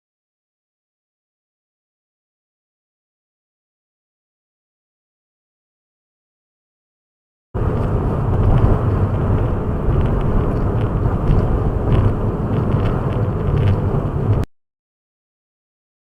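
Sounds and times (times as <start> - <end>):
car driving road noise: 7.6 - 14.5.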